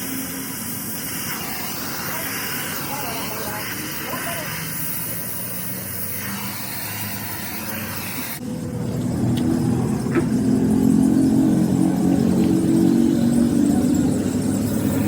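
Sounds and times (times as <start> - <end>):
steady hiss: 0.0 - 8.4
engine running: 0.0 - 15.0.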